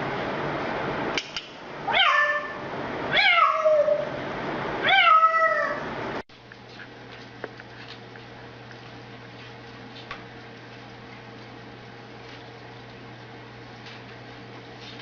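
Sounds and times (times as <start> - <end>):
cat meowing: 1.9 - 4.1, 4.8 - 5.8.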